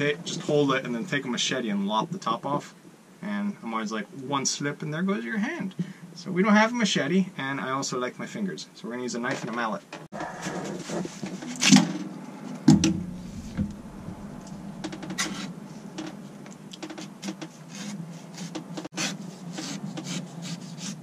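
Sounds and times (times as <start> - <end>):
knife scraping coconut husk: 17.0 - 21.0.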